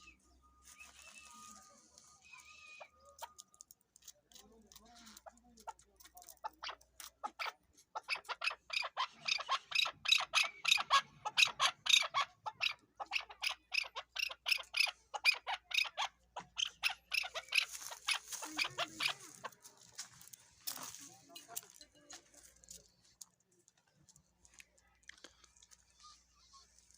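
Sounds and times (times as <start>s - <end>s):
partridge calling harsh notes: 6.4s - 19.6s.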